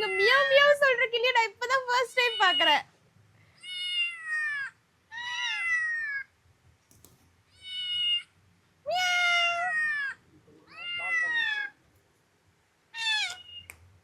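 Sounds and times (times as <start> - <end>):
parrot imitating cat meow: 2.2 - 2.8, 3.6 - 6.3, 8.9 - 11.8, 12.9 - 13.7.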